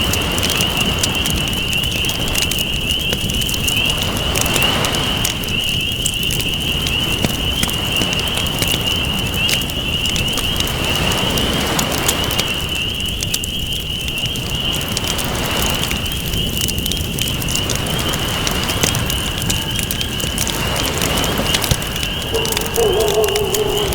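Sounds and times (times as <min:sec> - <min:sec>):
campfire crackling and popping: 0:00.0 - 0:23.9
ocean waves washing: 0:19.2 - 0:23.9.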